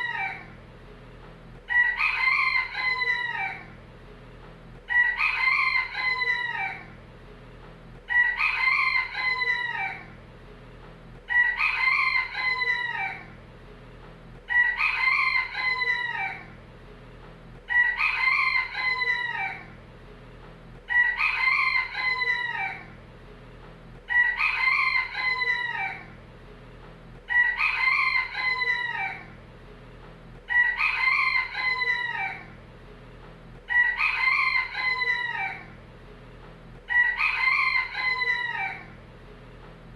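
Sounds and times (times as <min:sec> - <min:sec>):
rooster crowing: 0:01.7 - 0:03.8, 0:04.9 - 0:07.0, 0:08.1 - 0:10.2, 0:11.3 - 0:13.4, 0:14.5 - 0:16.6, 0:17.7 - 0:19.8, 0:20.9 - 0:23.0, 0:24.1 - 0:26.2, 0:27.3 - 0:29.4, 0:30.5 - 0:32.6, 0:33.7 - 0:35.8, 0:36.9 - 0:39.0.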